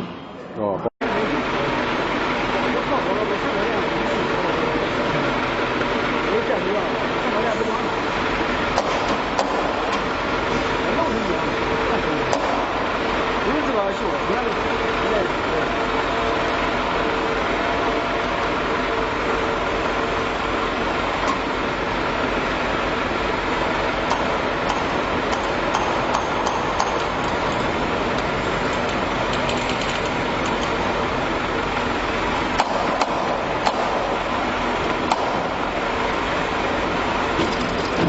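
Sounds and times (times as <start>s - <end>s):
industrial machinery running: 0.0s - 38.0s
sharp clicks and knocks: 8.7s - 10.1s, 24.0s - 30.8s, 32.6s - 34.1s, 34.8s - 35.6s, 37.4s - 38.0s.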